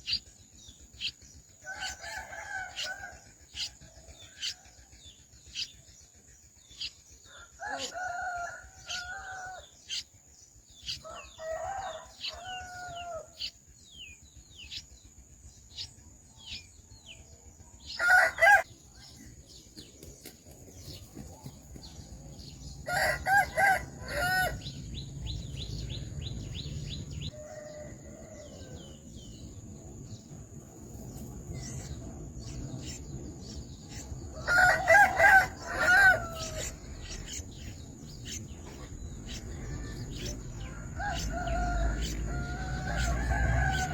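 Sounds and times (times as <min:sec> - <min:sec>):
rooster crowing: 0:01.6 - 0:03.3, 0:07.3 - 0:09.6, 0:11.0 - 0:13.4, 0:17.9 - 0:18.7, 0:22.8 - 0:24.8, 0:25.8 - 0:29.0, 0:34.3 - 0:37.2, 0:39.3 - 0:43.9.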